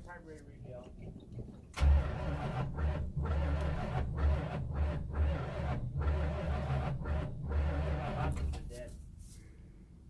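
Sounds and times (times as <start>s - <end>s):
car engine cold starting: 1.8s - 8.7s.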